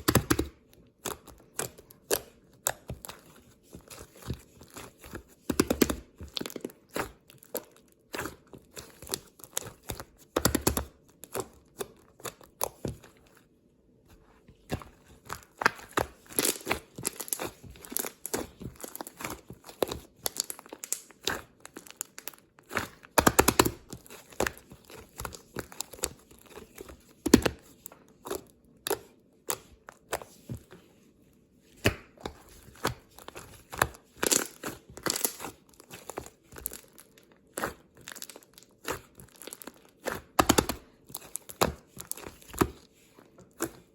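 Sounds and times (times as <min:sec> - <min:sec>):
crinkling and tearing: 0:15.3 - 0:27.0, 0:33.1 - 0:42.7.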